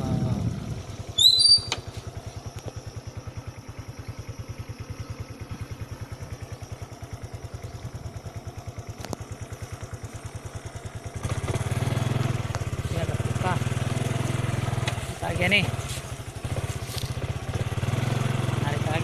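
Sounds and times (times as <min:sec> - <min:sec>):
motorcycle engine idling: 0:00.0 - 0:19.0
high-pitched rising squeak: 0:01.2 - 0:01.8.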